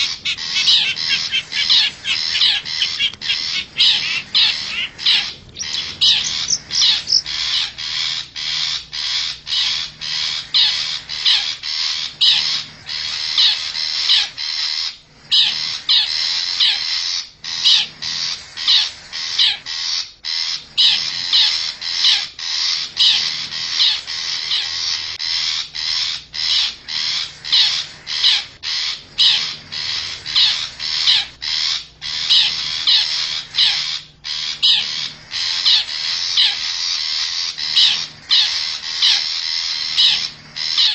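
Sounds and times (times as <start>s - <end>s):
bird giving harsh scratchy calls: 0.0s - 40.9s.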